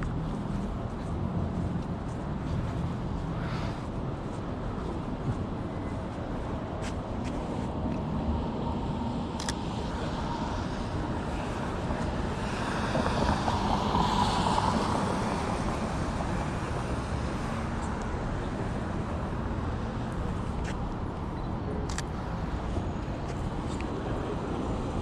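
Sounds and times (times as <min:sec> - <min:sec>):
city street traffic: 0:00.0 - 0:25.0
vehicle passing: 0:10.1 - 0:17.8.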